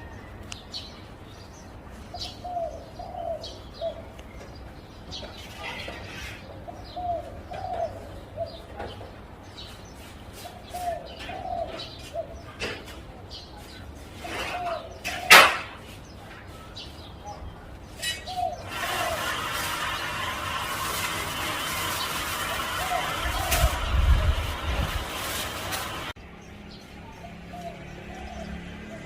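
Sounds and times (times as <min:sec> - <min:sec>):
small birds chirping: 0:00.0 - 0:20.2, 0:21.3 - 0:29.0
dove cooing: 0:02.2 - 0:04.1, 0:06.7 - 0:08.9, 0:10.5 - 0:12.6, 0:14.2 - 0:15.6, 0:22.2 - 0:25.4, 0:27.5 - 0:29.0
steady rushing noise: 0:19.0 - 0:26.2.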